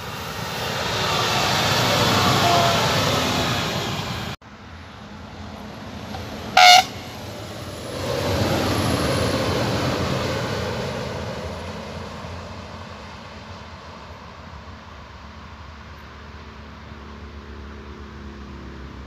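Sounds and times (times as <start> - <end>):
train passing rumble: 0.0 - 19.0
train horn toot: 6.5 - 7.2.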